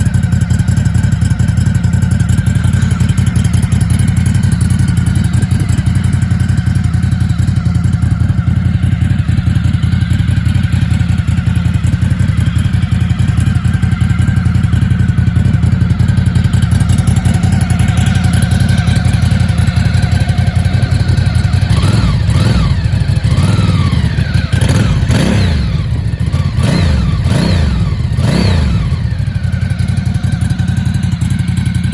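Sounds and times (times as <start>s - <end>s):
motorcycle engine idling: 0.0s - 31.9s
motorcycle throttle blips: 0.0s - 31.9s.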